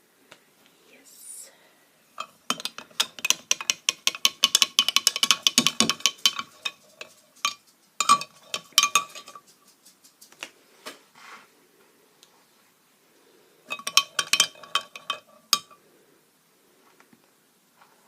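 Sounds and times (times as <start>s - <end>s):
clinking taps on glass: 2.2s - 9.5s, 13.7s - 15.8s.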